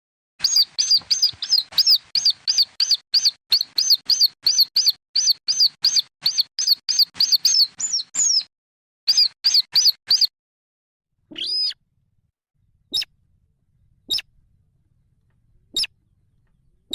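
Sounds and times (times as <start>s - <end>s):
rail chicks peeping: 0.4s - 8.5s, 11.3s - 11.8s, 12.9s - 13.1s, 14.0s - 14.3s, 15.7s - 16.9s
longer lower bird call: 11.3s - 11.8s, 14.0s - 14.3s, 15.7s - 16.9s.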